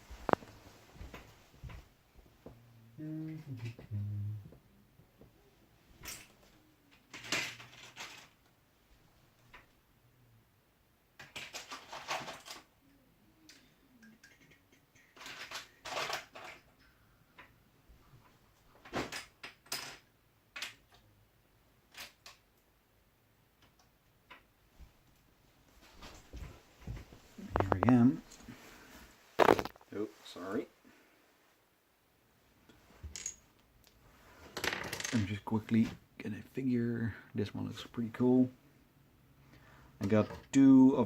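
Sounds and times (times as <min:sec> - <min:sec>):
plastic figures clattering: 0:06.0 - 0:08.5, 0:11.2 - 0:12.7, 0:14.0 - 0:16.8, 0:18.8 - 0:21.0, 0:27.5 - 0:28.4, 0:29.4 - 0:29.8, 0:34.5 - 0:35.3.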